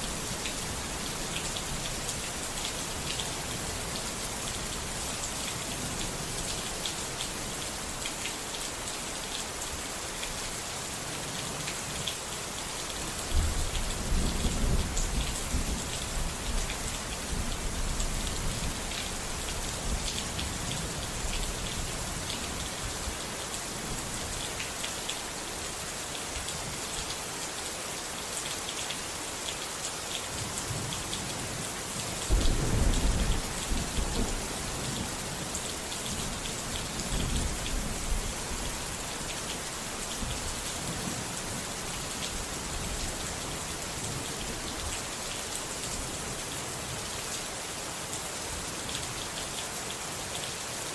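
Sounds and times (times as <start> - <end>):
steady rain: 0.0 - 50.9
low rolls of thunder: 32.3 - 34.5.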